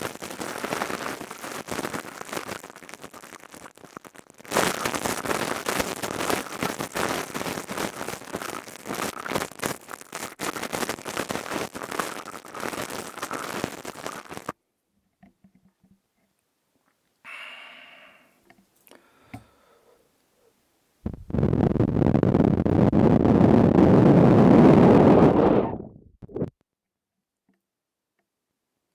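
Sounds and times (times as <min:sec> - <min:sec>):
crystal tube crackling and scraping: 0:00.0 - 0:14.6.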